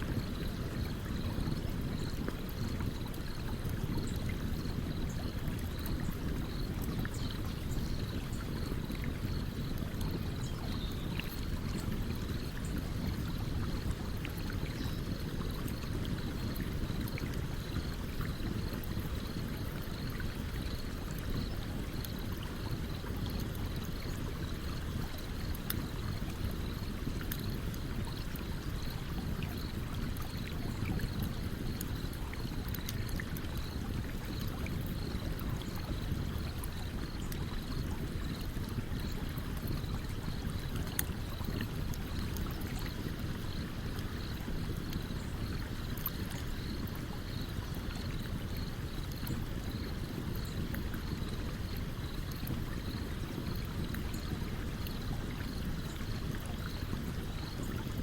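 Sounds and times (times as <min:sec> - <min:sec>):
campfire crackling and popping: 0:00.0 - 0:47.0, 0:47.6 - 0:54.2
stream flowing: 0:07.7 - 0:58.0.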